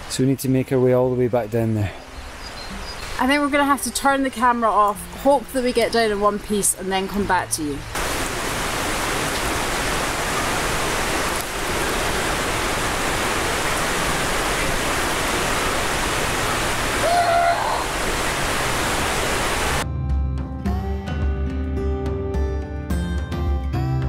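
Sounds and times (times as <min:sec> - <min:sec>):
stream rushing over rocks: 0:07.1 - 0:19.8.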